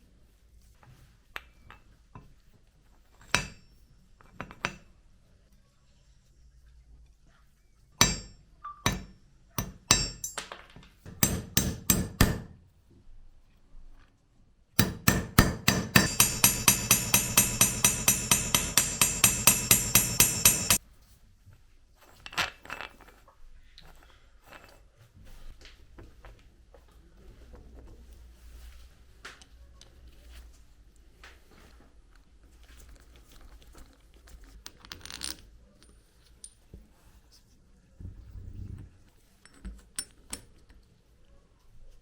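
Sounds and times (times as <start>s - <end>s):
metal clinks and knocks: 8.0s - 12.6s, 14.8s - 20.8s
ringing metallic whirring: 16.0s - 20.8s.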